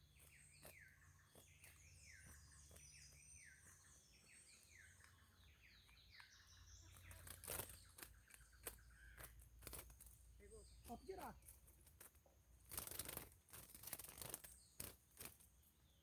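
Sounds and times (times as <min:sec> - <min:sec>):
finch singing whistled notes: 0:00.0 - 0:09.3.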